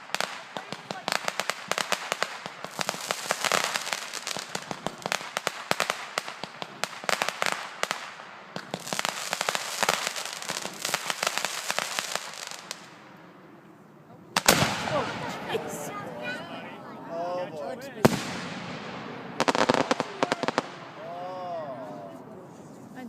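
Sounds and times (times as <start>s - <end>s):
fireworks popping and crackling: 0.0s - 13.0s, 14.4s - 15.8s, 18.0s - 21.0s.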